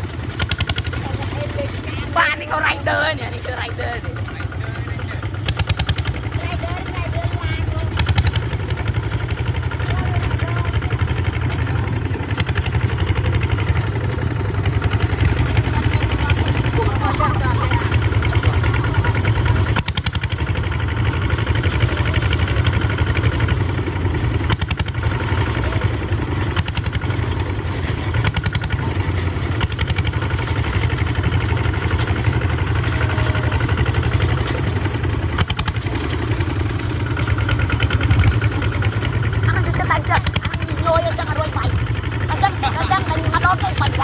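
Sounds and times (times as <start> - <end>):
tractor engine chugging: 0.0 - 44.0.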